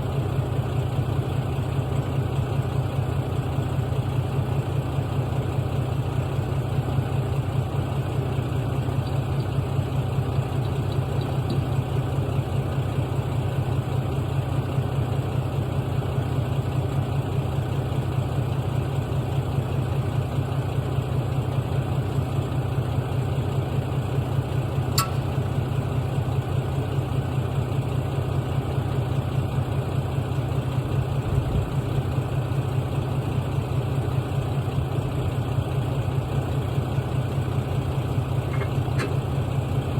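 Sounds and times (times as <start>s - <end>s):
diesel truck engine idling: 0.0s - 39.9s
sharp click: 25.0s - 25.3s.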